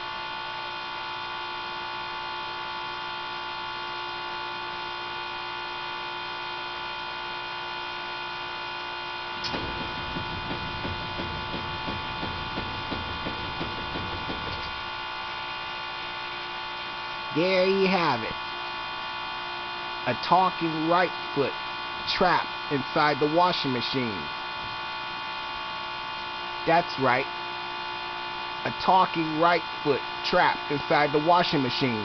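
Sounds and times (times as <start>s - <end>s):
steady electrical hum: 0.0s - 32.0s
low uneven pulsing rumble: 9.2s - 16.4s.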